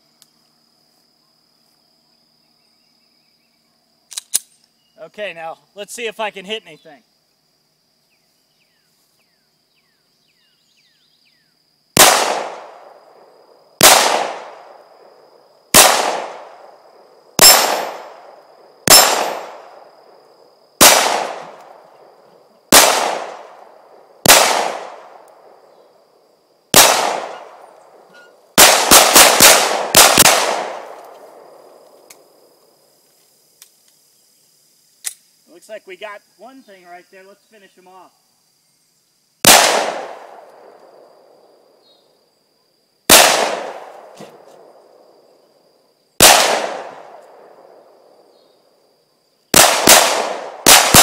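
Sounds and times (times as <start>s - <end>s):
pistol shots: 12.0s - 13.0s, 13.8s - 14.8s, 15.7s - 16.7s, 17.4s - 19.8s, 20.8s - 21.8s, 22.7s - 23.6s, 24.2s - 25.6s, 26.7s - 27.6s, 28.6s - 31.6s, 39.4s - 40.8s, 43.1s - 44.4s, 46.2s - 47.2s, 49.5s - 51.0s.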